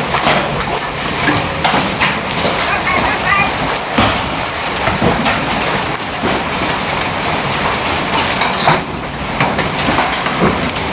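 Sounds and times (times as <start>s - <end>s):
hailstones clattering: 0.0s - 10.9s
heavy rain: 0.0s - 10.9s.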